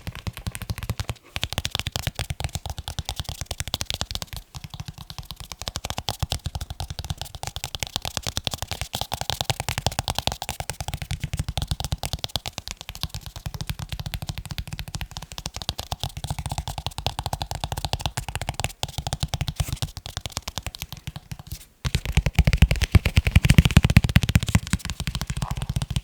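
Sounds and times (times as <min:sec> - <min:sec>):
rapid tapping on leather: 0:00.0 - 0:26.0.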